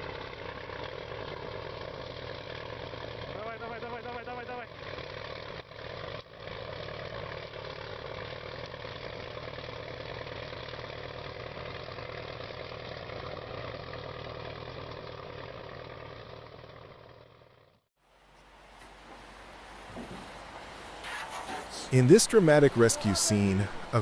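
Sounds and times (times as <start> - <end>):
heavy vehicle engine running: 0.0 - 24.0.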